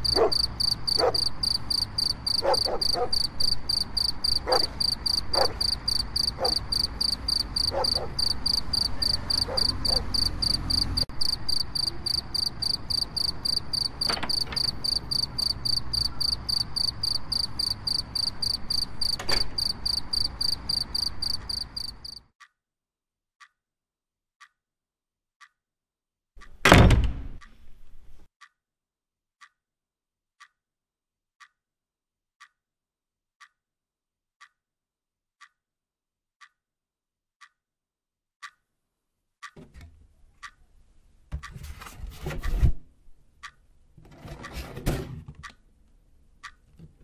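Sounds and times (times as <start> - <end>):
crickets chirping: 0.0 - 22.2
frogs croaking: 0.0 - 22.2
clock ticking: 0.0 - 22.6, 23.4 - 23.6, 24.4 - 24.6, 25.4 - 25.6, 26.4 - 27.7, 28.4 - 28.6, 29.4 - 29.6, 30.4 - 30.6, 31.4 - 31.6, 32.4 - 32.6, 33.4 - 33.7, 34.4 - 34.7, 35.4 - 35.6, 36.4 - 36.6, 37.4 - 37.6, 38.4 - 38.8, 39.4 - 40.8, 43.2 - 44.6, 45.4 - 47.0
loud thump: 26.6 - 27.4.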